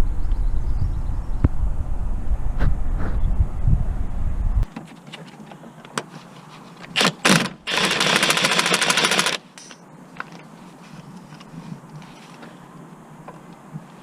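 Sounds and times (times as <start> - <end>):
impact wrench hammering: 7.0 - 9.8.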